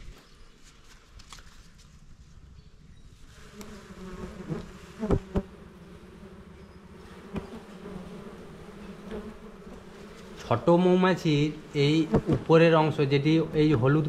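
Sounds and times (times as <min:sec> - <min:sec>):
bees buzzing: 0:03.3 - 0:14.0.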